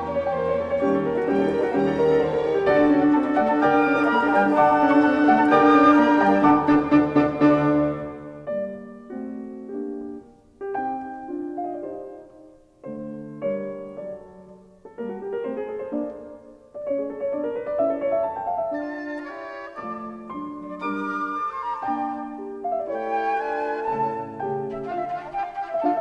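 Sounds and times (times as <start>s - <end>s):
slow classical piano: 0.0s - 26.0s.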